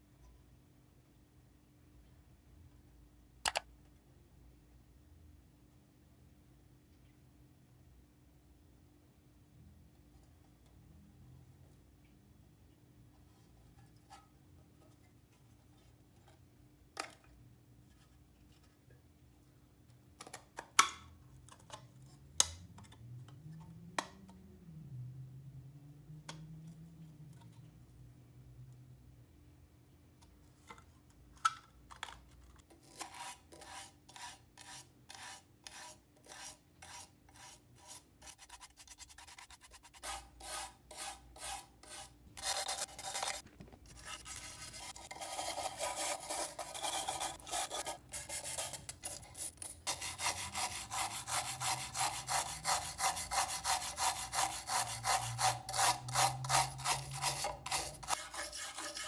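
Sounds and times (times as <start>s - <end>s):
rubbing rust off metal: 35.7s - 59.0s.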